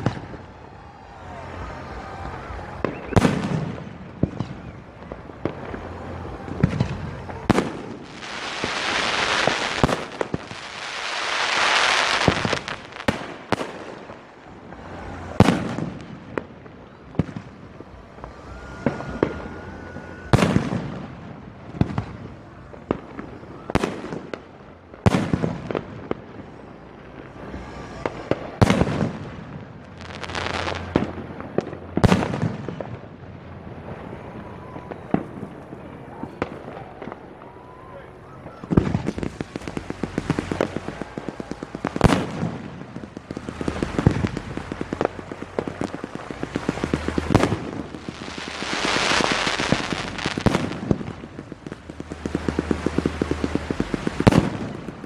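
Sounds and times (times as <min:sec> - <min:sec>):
rushing noise: 0:33.5 - 0:55.0.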